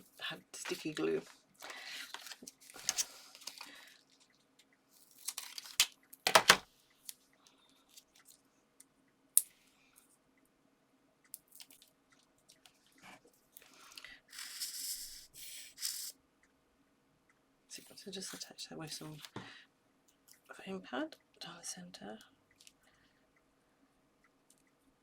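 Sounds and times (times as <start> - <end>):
paper crinkle: 1.6 - 4.3, 5.0 - 6.6
paper taps and rustles: 5.2 - 6.6.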